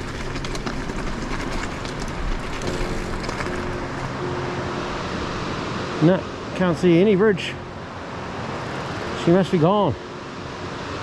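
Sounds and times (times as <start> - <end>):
tyres rolling on gravel: 0.0 - 4.2.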